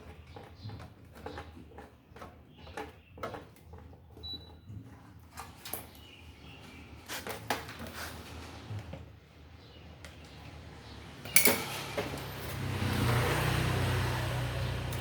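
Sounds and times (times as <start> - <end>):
clicks and knocks of fan parts: 11.2 - 12.7, 14.8 - 15.0.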